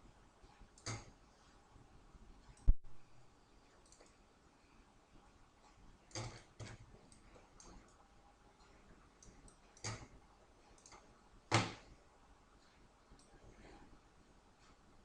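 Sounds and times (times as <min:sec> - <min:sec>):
computer mouse clicking: 0:00.8 - 0:01.2, 0:03.8 - 0:04.2, 0:09.2 - 0:10.1, 0:10.7 - 0:11.9.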